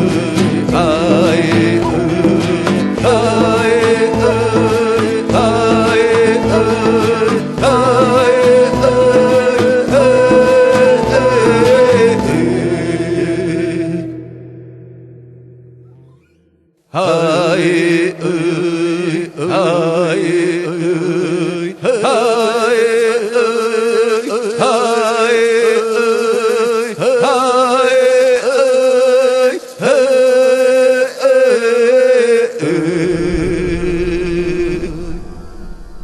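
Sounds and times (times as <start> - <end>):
wordless chanted vocals: 0.0 - 14.6, 16.9 - 36.0
held drone: 33.1 - 36.0.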